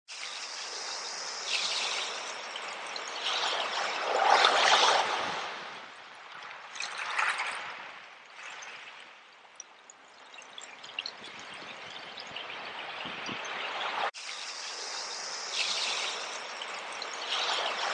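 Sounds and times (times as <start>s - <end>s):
ocean waves washing in: 0.1s - 9.3s, 12.4s - 17.9s.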